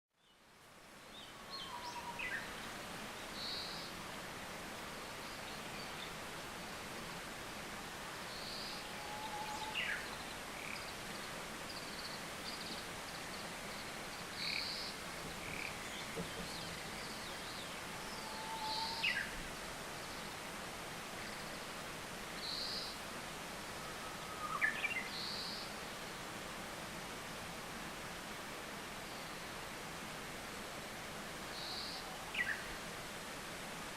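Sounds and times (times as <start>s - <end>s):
wild birds singing: 0.2s - 3.9s, 8.3s - 19.4s, 23.8s - 25.7s, 31.6s - 32.7s
steady background hiss: 0.2s - 33.9s.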